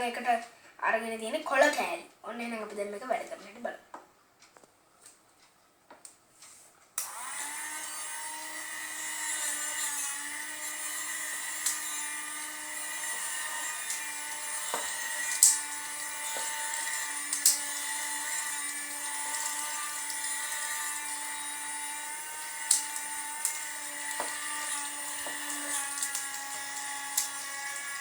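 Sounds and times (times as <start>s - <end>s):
small motor whining: 7.0s - 28.0s.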